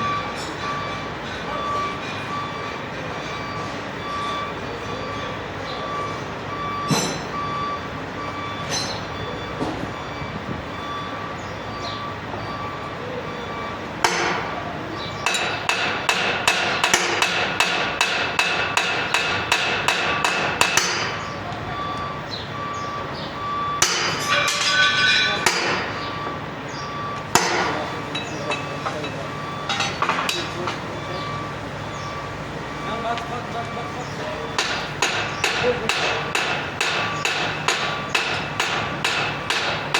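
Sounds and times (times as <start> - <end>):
hammer blows on metal: 6.8 - 7.4, 14.0 - 21.4, 34.0 - 39.9.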